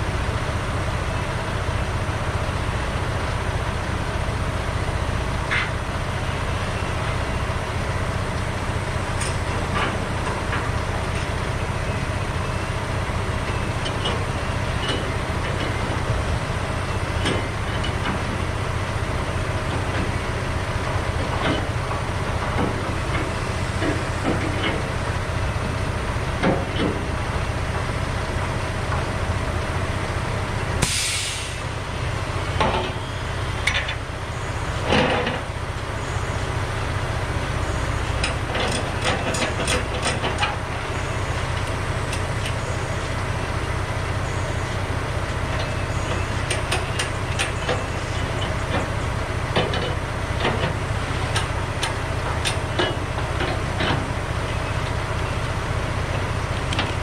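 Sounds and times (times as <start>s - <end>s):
truck engine drone in cab: 0.0s - 57.0s
short hiss: 30.8s - 31.6s
rattles and clicks: 38.2s - 40.7s.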